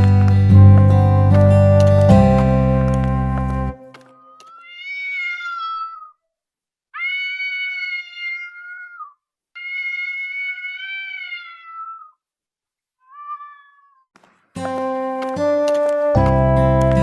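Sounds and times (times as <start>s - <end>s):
music: 0.0s - 4.1s, 14.6s - 17.0s
cat meowing: 4.1s - 6.2s, 7.0s - 12.2s, 13.0s - 14.1s.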